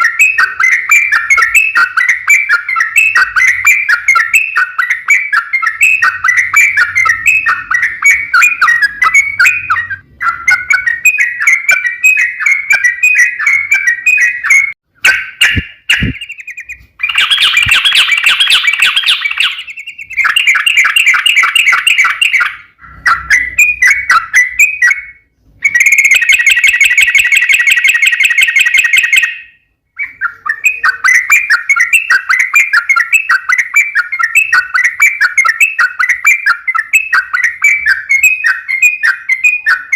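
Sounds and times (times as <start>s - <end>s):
bulbul singing chattering phrases: 0.0s - 22.2s.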